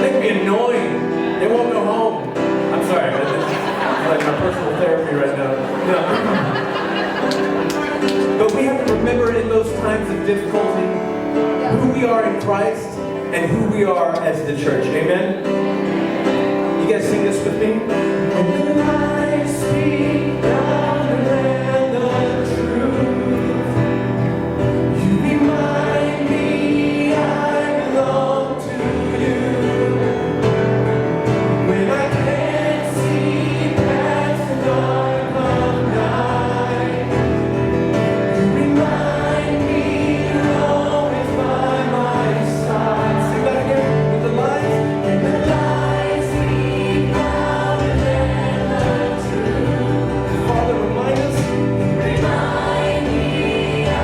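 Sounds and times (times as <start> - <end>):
congregation singing: 0.0 - 54.0
instrumental accompaniment: 0.0 - 54.0.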